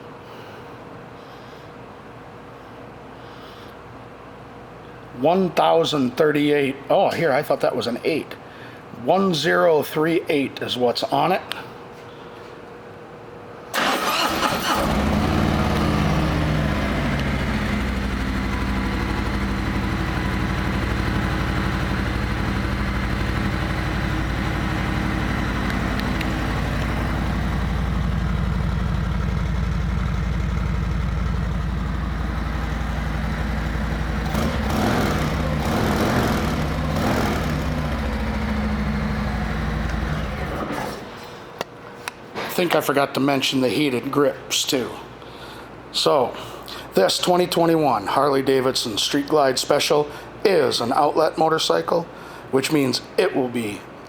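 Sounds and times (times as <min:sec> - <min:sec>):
motorcycle engine starting and idling: 0:13.7 - 0:41.0
motorcycle engine revving: 0:13.8 - 0:40.7.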